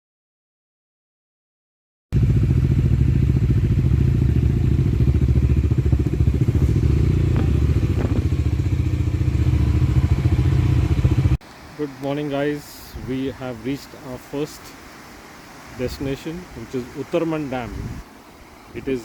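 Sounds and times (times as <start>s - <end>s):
motorcycle engine running: 2.2s - 11.4s.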